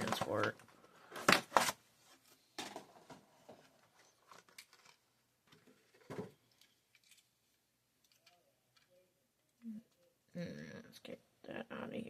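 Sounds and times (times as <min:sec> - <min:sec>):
packaging clicks and rustles: 0:00.0 - 0:01.8, 0:02.6 - 0:07.3.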